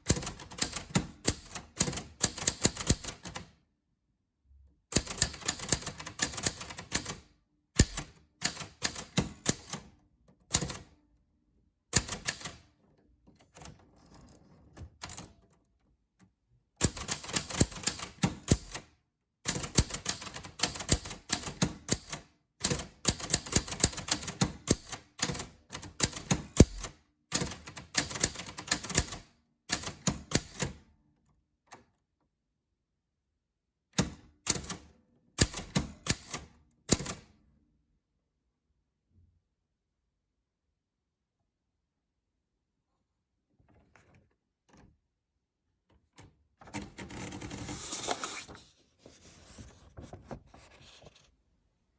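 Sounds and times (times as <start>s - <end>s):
typewriter keys clicking: 0.0s - 3.5s, 5.0s - 7.2s, 7.8s - 9.9s, 12.0s - 12.6s, 16.8s - 18.9s, 19.5s - 30.8s, 34.0s - 37.2s.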